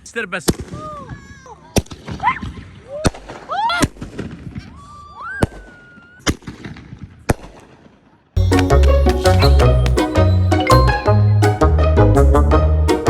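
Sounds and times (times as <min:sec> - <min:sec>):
music: 0:08.4 - 0:13.0.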